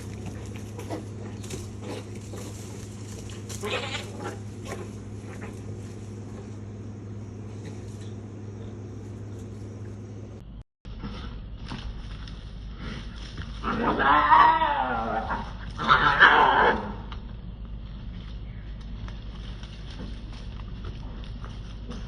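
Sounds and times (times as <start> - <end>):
cats yowling and fighting: 0.0 - 5.6, 13.6 - 17.2
steady low hum: 0.0 - 22.0.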